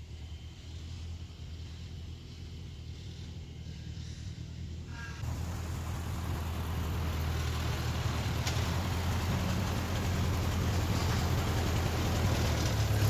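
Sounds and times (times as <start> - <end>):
engine humming deeply: 5.2 - 13.0.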